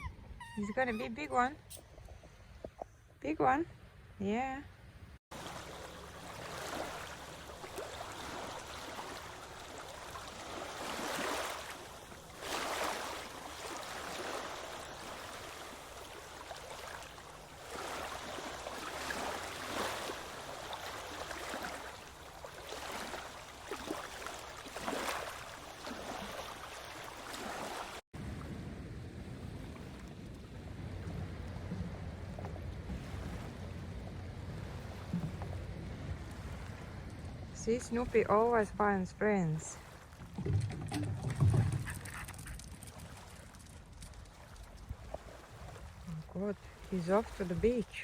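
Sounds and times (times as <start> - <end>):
sea surf washing ashore: 5.3 - 40.2, 45.0 - 48.0
wind rumbling on microphone: 28.2 - 38.7.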